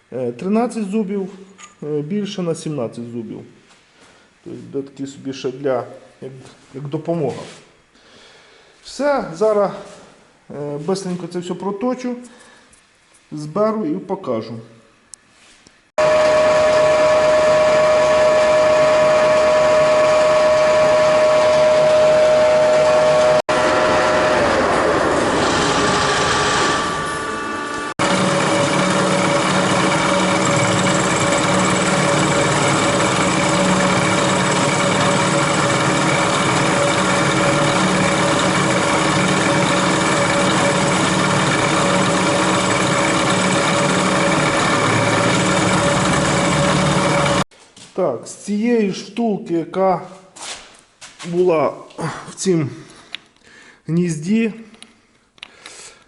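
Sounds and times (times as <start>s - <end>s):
metal lathe motor whine: 16.0s - 47.4s.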